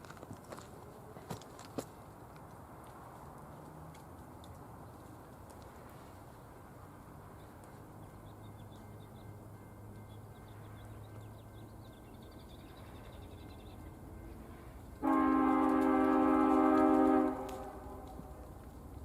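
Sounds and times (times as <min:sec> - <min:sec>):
locomotive air horn: 0:15.0 - 0:18.4.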